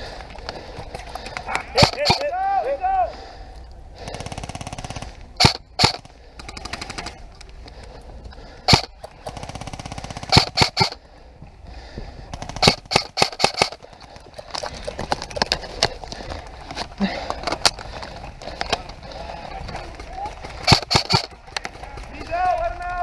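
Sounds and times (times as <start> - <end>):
airsoft guns full-auto bursts: 4.0 - 7.2, 8.7 - 11.0, 12.3 - 13.8, 20.4 - 22.3.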